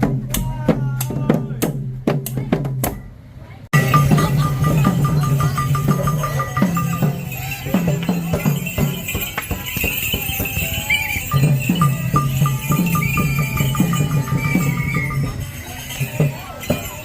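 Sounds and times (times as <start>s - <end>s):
fast ticking of small cymbals: 3.8s - 17.0s
low drum strokes: 3.8s - 17.0s.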